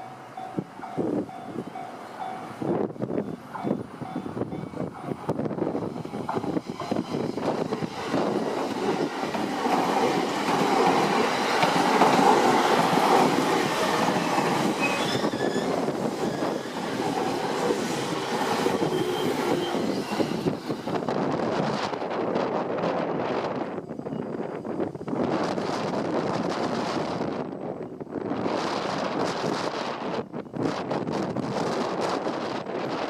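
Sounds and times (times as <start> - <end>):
train wheels clattering over rail joints: 3.2 - 20.3
wheel squeal: 14.7 - 17.0, 18.7 - 20.6.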